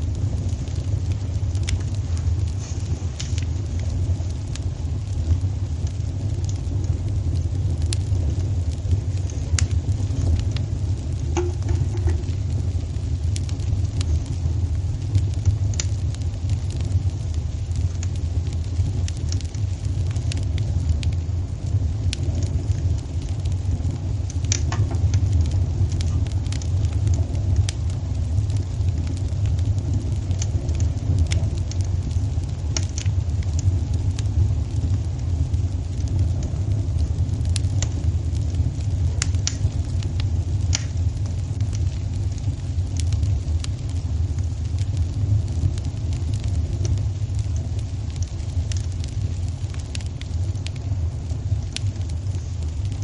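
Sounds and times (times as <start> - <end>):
low fire rumble: 0.0 - 53.0
wood fire crackling and popping: 0.0 - 53.0
sharp pops and snaps: 24.3 - 27.8, 32.7 - 33.6, 39.2 - 40.0, 40.6 - 41.0.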